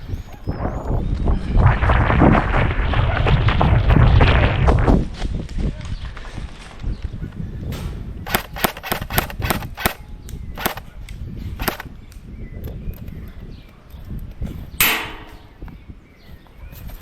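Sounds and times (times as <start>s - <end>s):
airsoft guns firing: 8.3s - 10.0s, 11.6s - 11.9s.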